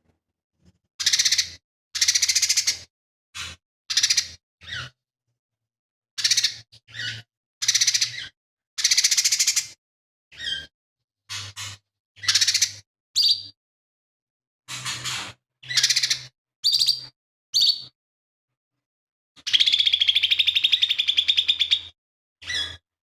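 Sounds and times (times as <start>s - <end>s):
bird chirping phrases: 11.3s - 13.6s, 14.7s - 18.0s, 19.4s - 22.8s.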